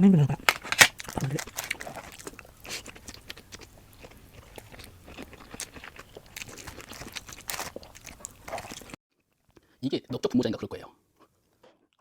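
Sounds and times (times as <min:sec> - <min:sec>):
crunchy chewing: 0:00.2 - 0:09.6.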